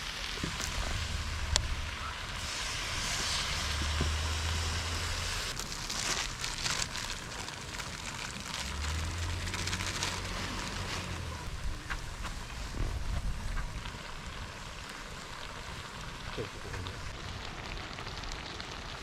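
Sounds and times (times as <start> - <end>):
campfire crackling and hissing: 0.0 - 19.0
low rumble: 0.2 - 5.7
sharp fire pops: 0.2 - 7.0, 11.0 - 15.5.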